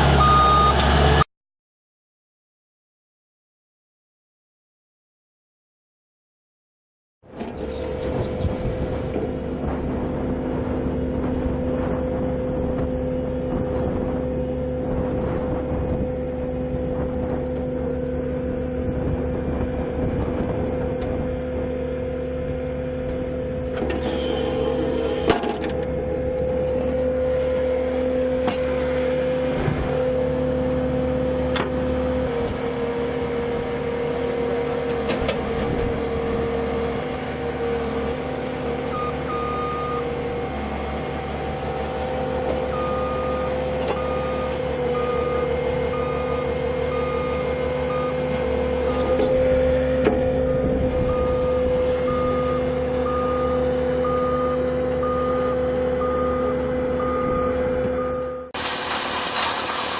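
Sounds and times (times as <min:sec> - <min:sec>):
heavy machine engine running: 0:00.0 - 0:01.3, 0:07.3 - 0:59.9
reversing alarm beeping: 0:00.2 - 0:00.9, 0:38.9 - 0:40.1, 0:42.7 - 0:49.6, 0:51.0 - 0:58.6.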